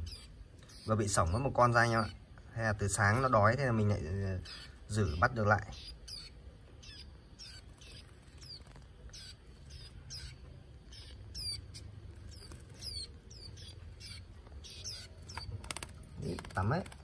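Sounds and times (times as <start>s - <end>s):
white-eyes chirping: 0.0s - 17.0s.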